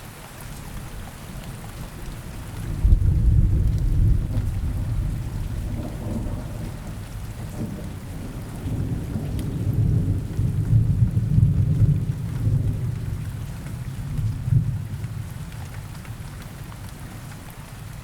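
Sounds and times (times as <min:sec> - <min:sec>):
rain in forest: 0:00.0 - 0:18.0
rolling thunder: 0:02.6 - 0:15.3.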